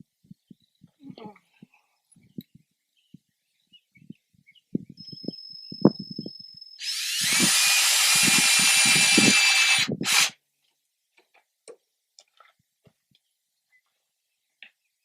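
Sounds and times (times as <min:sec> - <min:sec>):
handheld power tool running: 0:06.8 - 0:10.4.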